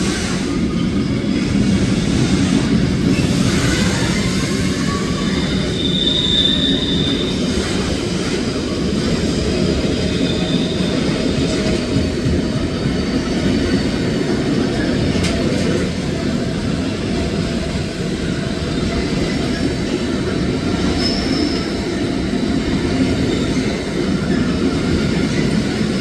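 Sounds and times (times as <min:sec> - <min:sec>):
train wheels rumbling: 0:00.0 - 0:26.0
high wheel squeal: 0:03.0 - 0:08.0, 0:09.6 - 0:11.6, 0:20.7 - 0:22.1.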